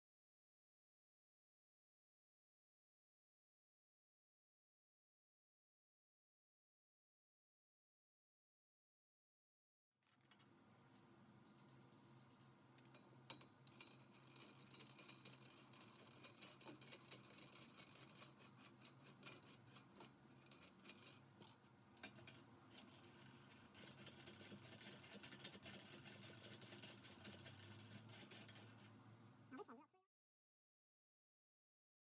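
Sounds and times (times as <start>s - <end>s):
metal parts and tools rattling: 11.4s - 28.9s.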